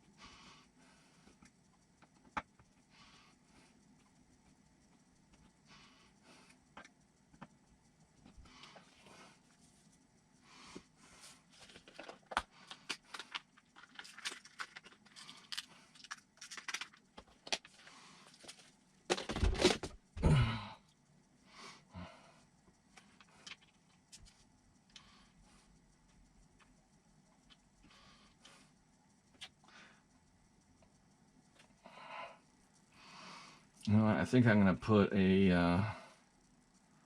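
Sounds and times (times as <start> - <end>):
parts rustling: 3.7 - 20.4
small parts clicking: 11.5 - 19.8, 22.5 - 32.9.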